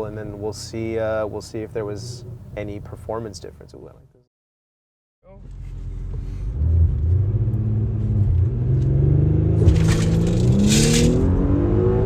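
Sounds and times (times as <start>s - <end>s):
car engine accelerating hard: 5.8s - 12.0s.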